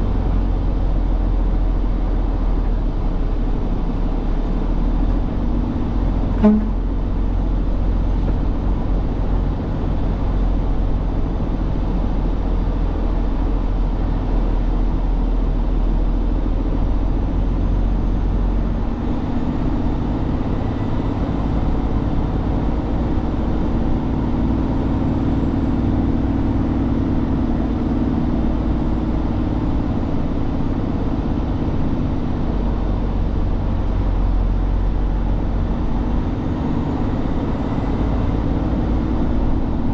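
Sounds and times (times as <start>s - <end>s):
truck engine and road noise: 0.0s - 39.9s
truck horn toot: 6.2s - 7.4s.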